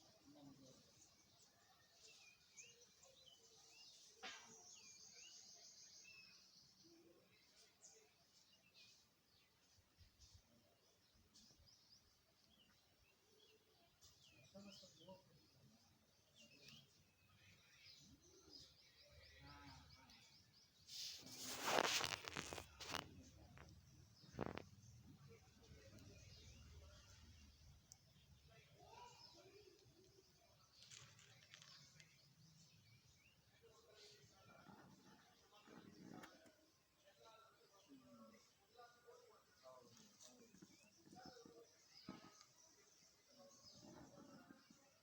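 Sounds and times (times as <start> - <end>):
small birds chirping: 0.0 - 45.0
rustling noise: 20.8 - 24.7, 30.7 - 32.2.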